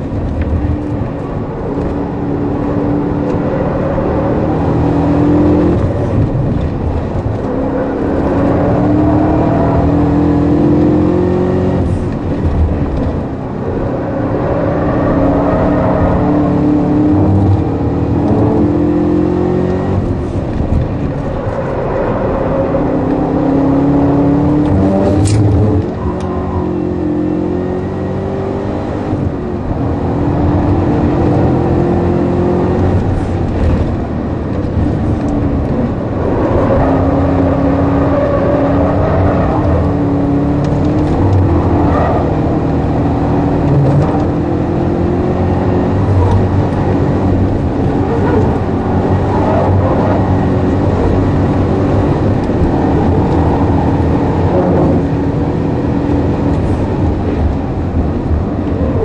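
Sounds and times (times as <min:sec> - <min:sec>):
car engine revving at speed: 0:00.0 - 0:59.0.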